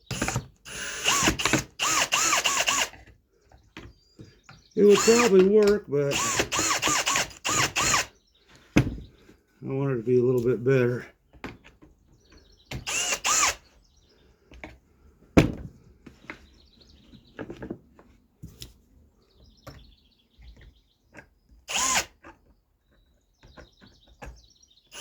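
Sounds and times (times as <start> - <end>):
power drill whining: 0.0 - 3.1, 4.8 - 8.2, 12.7 - 13.7, 21.7 - 22.2.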